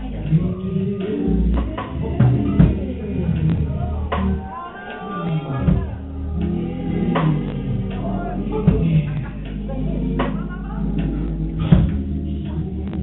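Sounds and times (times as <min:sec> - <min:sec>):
drum hits: 0:01.0 - 0:04.5, 0:05.7 - 0:08.1, 0:08.7 - 0:09.6, 0:10.2 - 0:12.1.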